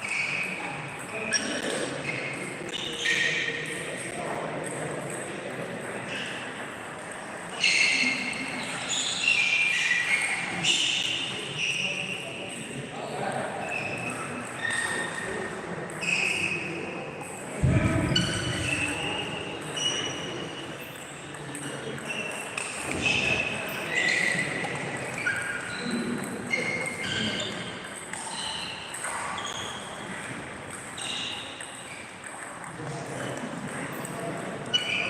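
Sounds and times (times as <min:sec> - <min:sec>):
shoes squealing on sports floor: 0:00.0 - 0:03.9, 0:07.5 - 0:35.0
low thump: 0:17.6 - 0:18.8.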